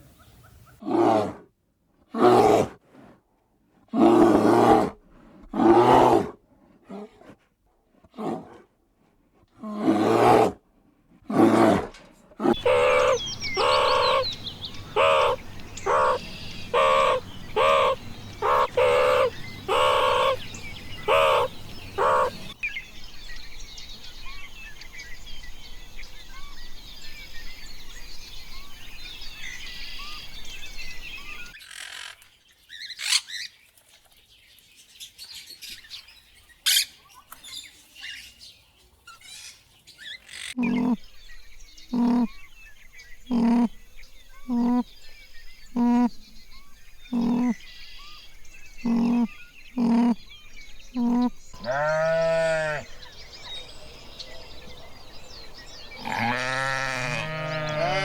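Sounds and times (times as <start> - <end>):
animal calls: 11.3 - 22.6, 40.2 - 41.1, 41.9 - 42.4, 43.3 - 43.8, 44.4 - 44.9, 45.7 - 46.2, 47.1 - 47.7, 48.8 - 53.1, 55.9 - 58.0
small birds chirping: 12.4 - 58.0.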